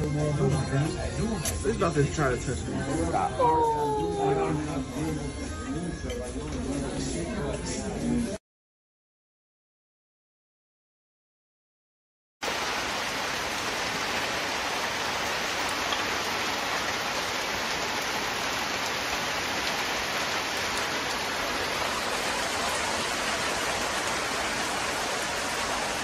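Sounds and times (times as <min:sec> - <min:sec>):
heavy rain on puddles: 0:12.4 - 0:26.0.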